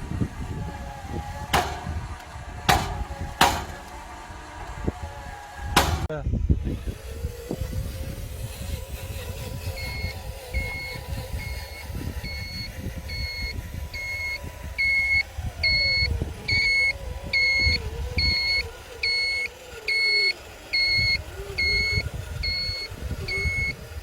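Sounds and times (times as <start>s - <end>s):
electronic reversing beep: 9.9s - 20.2s, 20.8s - 23.8s.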